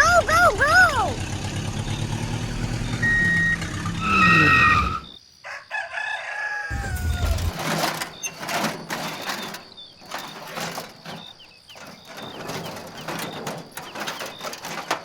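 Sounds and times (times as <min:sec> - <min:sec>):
scraping and rustling: 0:07.0 - 0:15.0.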